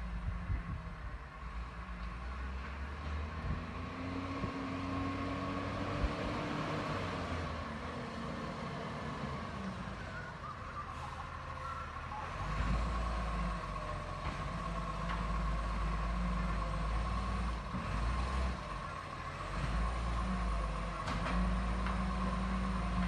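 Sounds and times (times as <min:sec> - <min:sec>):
garbage truck engine running: 0:05.4 - 0:23.0.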